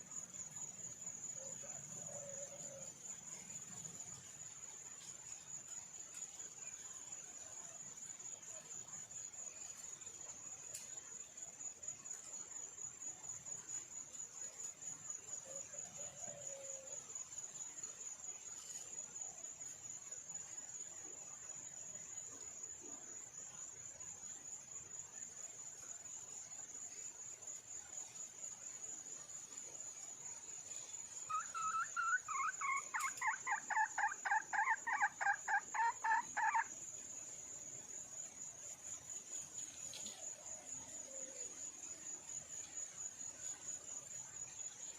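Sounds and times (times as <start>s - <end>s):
high insect trill: 0.0s - 44.9s
junglefowl hen calling: 31.3s - 36.7s.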